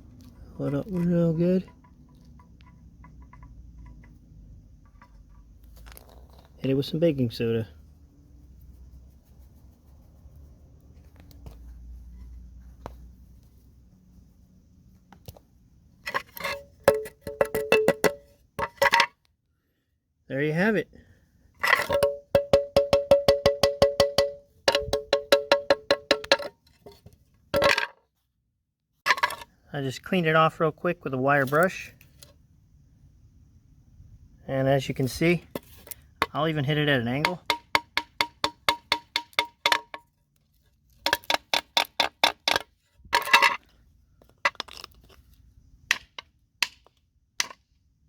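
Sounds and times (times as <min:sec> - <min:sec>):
metal mailbox door banging on concrete: 0:21.9 - 0:26.5.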